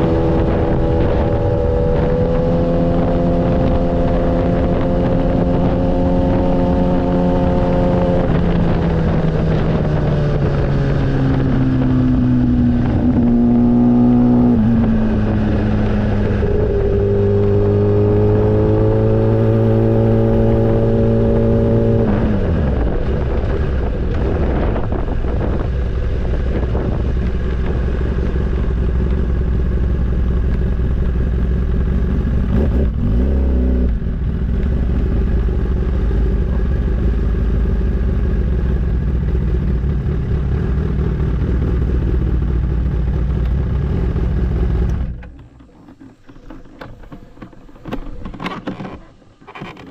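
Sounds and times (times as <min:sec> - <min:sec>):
wind on microphone: 0:00.0 - 0:29.8
motorcycle engine: 0:00.0 - 0:49.9.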